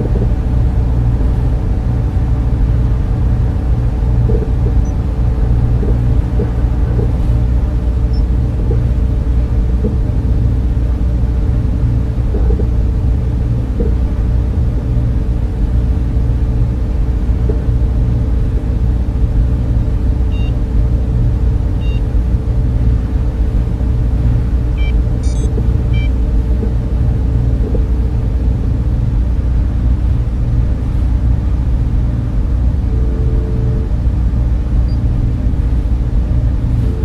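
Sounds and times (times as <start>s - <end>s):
cooling fans humming: 0.0s - 37.0s
faint electronic beeps: 24.8s - 26.1s.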